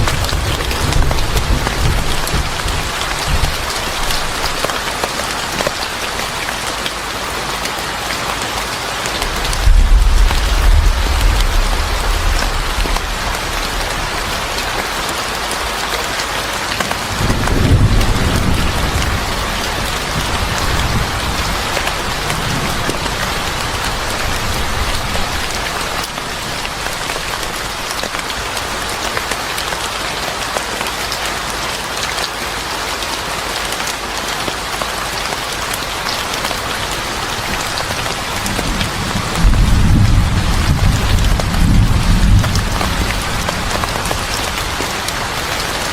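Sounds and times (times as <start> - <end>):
thunder rumble: 0.0 - 4.8, 9.2 - 16.0, 17.2 - 28.4, 37.4 - 45.9
heavy rain: 0.0 - 45.9.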